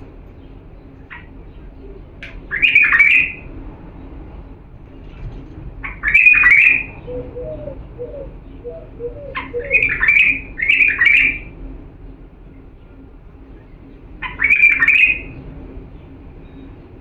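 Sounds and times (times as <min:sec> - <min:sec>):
bird singing warbled phrases: 0:00.0 - 0:03.4, 0:05.9 - 0:11.4
faint low bird notes: 0:00.0 - 0:17.0.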